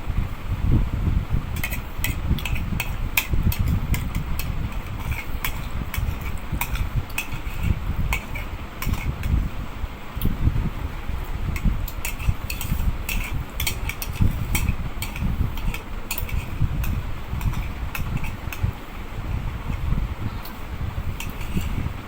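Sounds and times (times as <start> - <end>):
steady low rumble: 0.0 - 22.0
spoons clinking against plates: 11.9 - 18.6.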